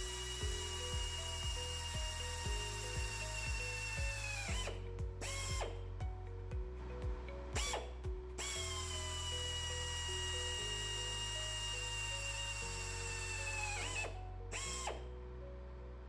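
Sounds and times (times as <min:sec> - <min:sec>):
power drill boring metal: 0:00.0 - 0:05.9, 0:07.6 - 0:15.1
background music with beat: 0:00.0 - 0:11.4.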